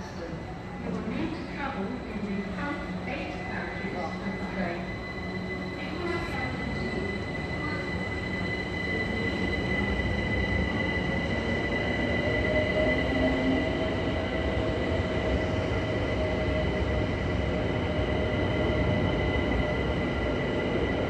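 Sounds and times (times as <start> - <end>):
high-pitched train squeal: 3.3 - 15.0.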